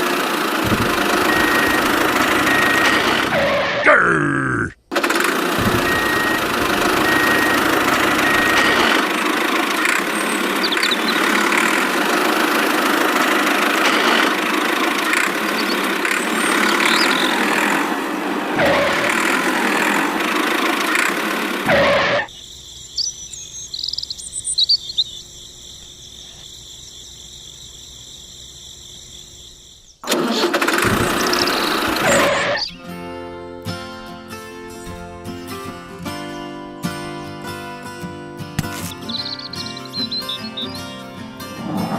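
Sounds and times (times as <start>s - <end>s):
tractor engine running: 0.0s - 3.9s, 4.8s - 41.9s
faint high chirps: 22.3s - 27.8s.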